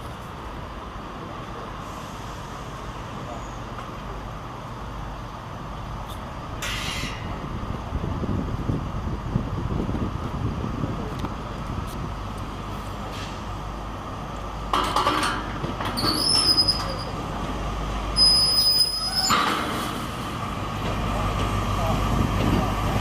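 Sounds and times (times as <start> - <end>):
train rumbling: 0.0 - 23.0
high-pitched metal squeals: 16.0 - 17.2, 18.2 - 19.4.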